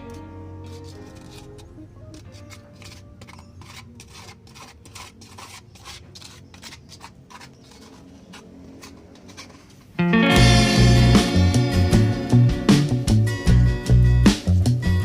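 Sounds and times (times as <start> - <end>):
hand tool scraping gritty surface: 0.6 - 9.9
loud background music: 10.0 - 15.0.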